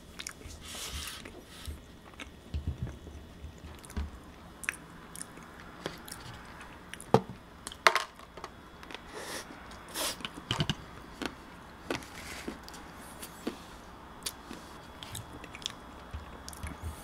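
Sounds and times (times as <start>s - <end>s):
chewing with wet smacking: 0.1s - 0.5s, 14.2s - 16.8s.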